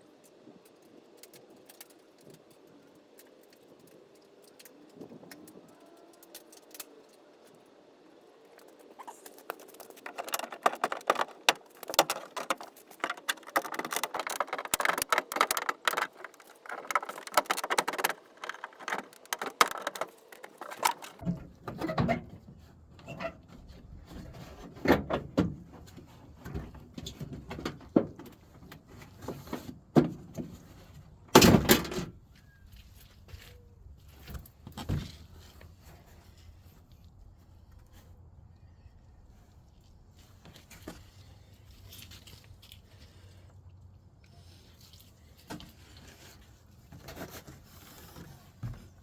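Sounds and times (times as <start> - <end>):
metal rattling and clicking: 8.6 - 21.3
clunks and knocks: 9.5 - 28.3.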